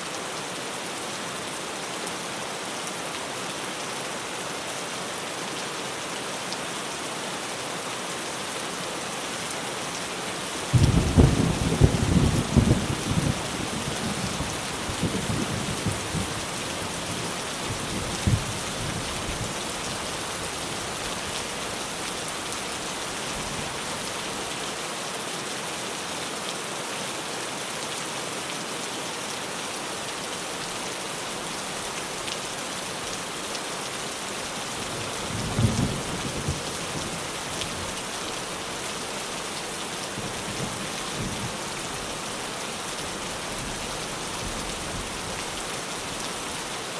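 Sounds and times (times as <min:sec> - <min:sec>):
rain on a tin roof: 0:00.0 - 0:46.9
thunder rumbling: 0:10.7 - 0:13.4.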